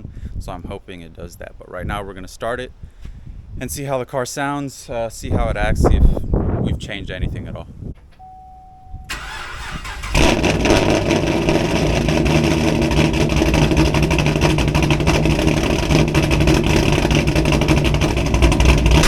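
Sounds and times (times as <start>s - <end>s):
car starter cranking: 8.0s - 19.0s
car engine idling: 8.2s - 19.0s
engine revving: 9.1s - 19.0s.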